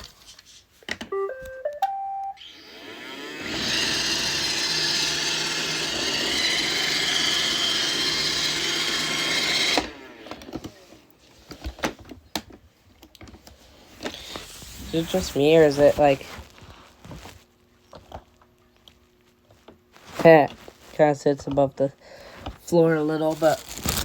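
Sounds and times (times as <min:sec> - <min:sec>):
rising tune of beeps: 0:01.1 - 0:02.4
robot vacuum motor and brushes: 0:02.4 - 0:11.8, 0:13.7 - 0:17.3.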